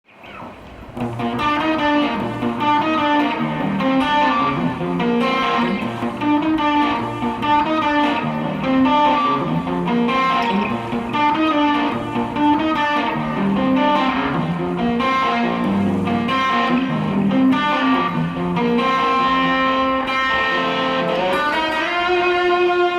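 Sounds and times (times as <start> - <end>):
electric guitar lead melody: 0.1 - 22.9.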